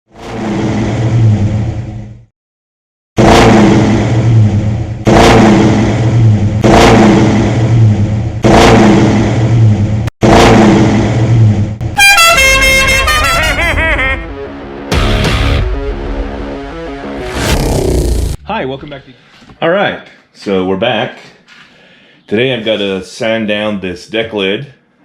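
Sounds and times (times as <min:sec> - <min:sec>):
car engine revving: 0:03.2 - 0:18.5.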